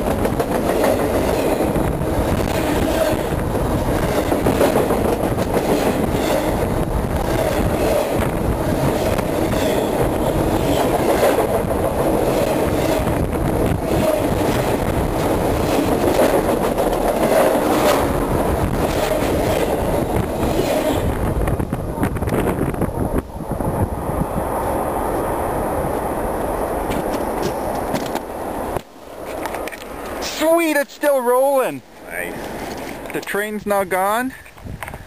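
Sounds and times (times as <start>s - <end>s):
train wheel clicks and knocks: 0.0s - 21.0s
train cars rumbling and rattling: 0.0s - 35.0s.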